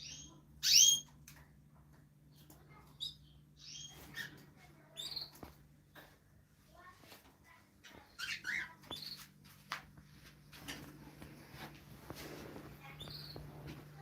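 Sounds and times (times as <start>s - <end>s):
small birds chirping: 0.0s - 6.1s, 7.5s - 9.4s, 12.6s - 14.0s.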